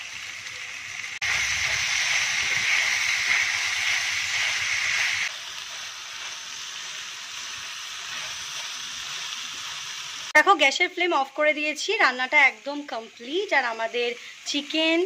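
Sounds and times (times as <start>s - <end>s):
food sizzling in frying pan: 0.0s - 15.0s
spatula stirring: 1.2s - 9.9s.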